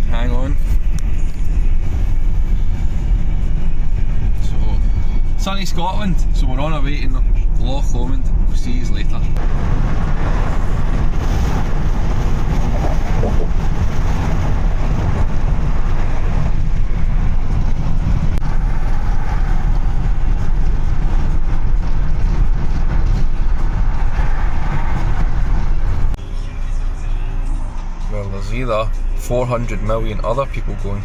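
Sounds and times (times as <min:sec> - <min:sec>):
tyre and engine rumble: 0:00.0 - 0:31.0
wind noise: 0:09.3 - 0:26.2.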